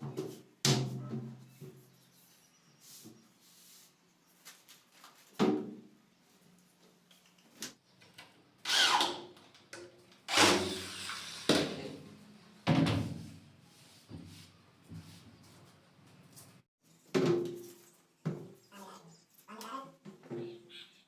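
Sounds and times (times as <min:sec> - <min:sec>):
power drill bursts: 0:08.7 - 0:09.2, 0:10.3 - 0:11.5.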